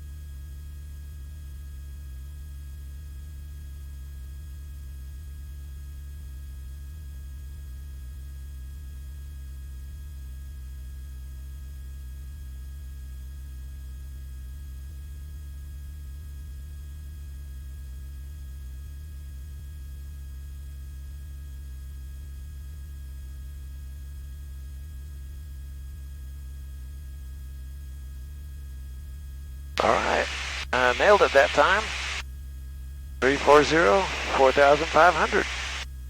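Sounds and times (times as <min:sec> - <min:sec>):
faint high whine: 0:29.8 - 0:32.2, 0:33.2 - 0:35.8
propeller plane engine drone: 0:29.8 - 0:32.2, 0:33.2 - 0:35.8.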